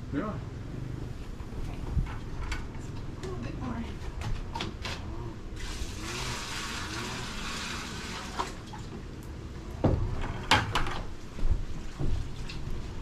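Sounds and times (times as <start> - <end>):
water poured into tub: 5.6 - 8.9.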